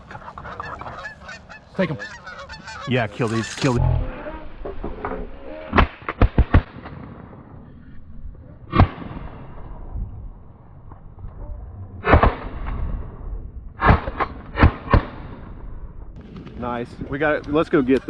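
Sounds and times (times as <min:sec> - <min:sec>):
shotgun blasts: 0:08.7 - 0:09.7, 0:12.0 - 0:12.8, 0:13.8 - 0:15.6.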